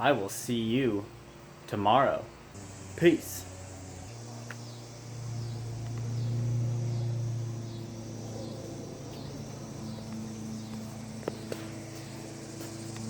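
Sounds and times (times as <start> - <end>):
engine low drone: 0.0 - 13.0
insects calling in high pulses: 2.6 - 13.0.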